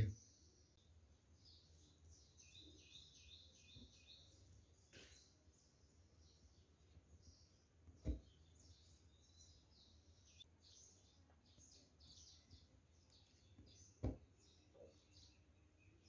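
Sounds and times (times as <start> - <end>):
small birds chirping: 0.0 - 16.0
dull thumps: 14.0 - 14.3.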